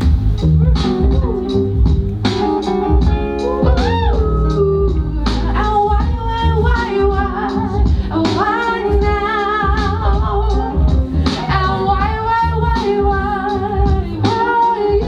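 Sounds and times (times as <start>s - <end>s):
bass: 0.0s - 15.0s
steady drum beat: 0.0s - 15.0s
person singing: 3.3s - 15.0s.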